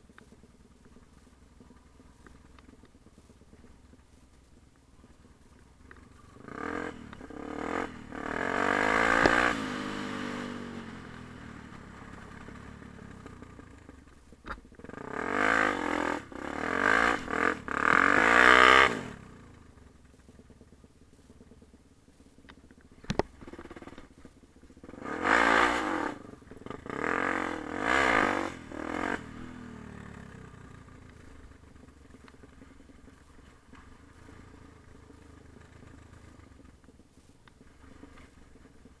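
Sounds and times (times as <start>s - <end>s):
dirt bike engine revving: 6.3s - 13.9s, 14.8s - 19.4s, 24.8s - 31.5s.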